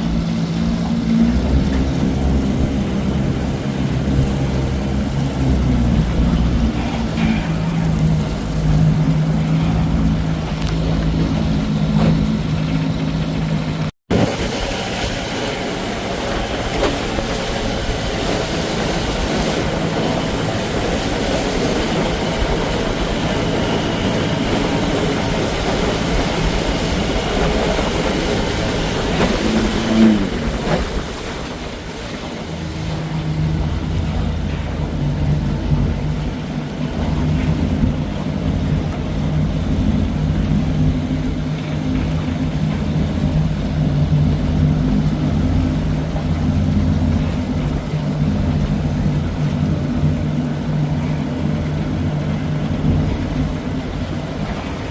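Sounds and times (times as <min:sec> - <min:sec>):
outboard motor running: 0:00.0 - 0:54.9
rushing wind and water: 0:00.0 - 0:54.9
short falling whine: 0:26.8 - 0:32.0.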